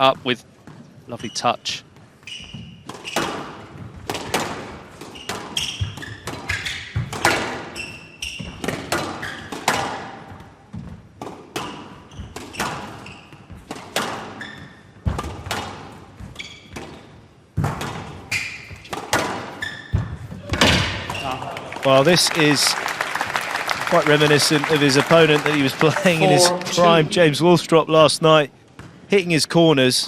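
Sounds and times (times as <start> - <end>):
shoe squeaks on court floor: 0.7 - 3.8, 5.0 - 9.7, 11.6 - 15.0, 16.2 - 17.0, 18.2 - 21.4.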